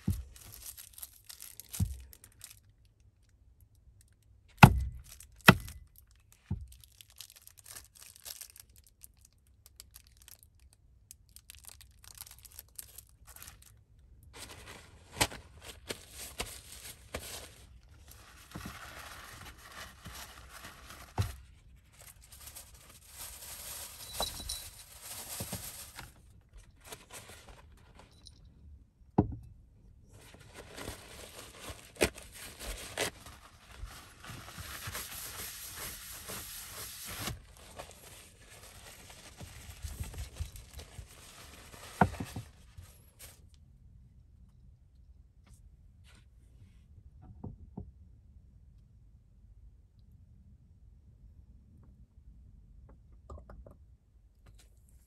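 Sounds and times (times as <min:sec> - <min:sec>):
packaging crinkling and tearing: 0:00.0 - 0:03.0, 0:04.7 - 0:28.2, 0:30.2 - 0:43.4.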